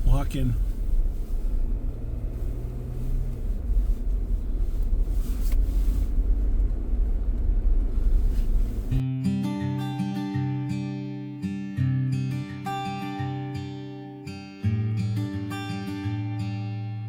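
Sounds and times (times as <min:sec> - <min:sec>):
vehicle rumble: 0:00.0 - 0:09.0
strummed acoustic guitar music: 0:08.9 - 0:17.0.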